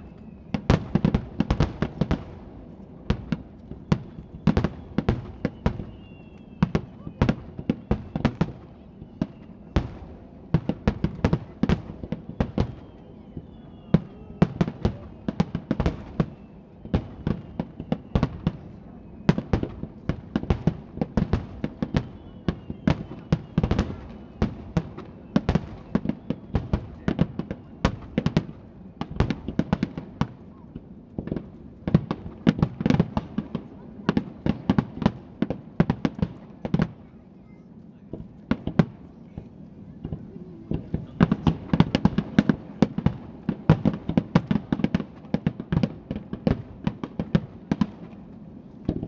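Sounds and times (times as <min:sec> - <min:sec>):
falling firework whistles: 0:00.0 - 0:34.9
fireworks booming and crackling: 0:00.0 - 0:49.0.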